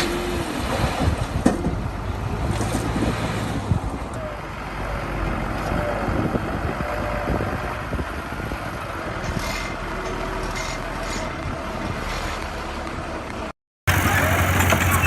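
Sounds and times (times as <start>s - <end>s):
heavy diesel engine running: 13.9s - 15.0s.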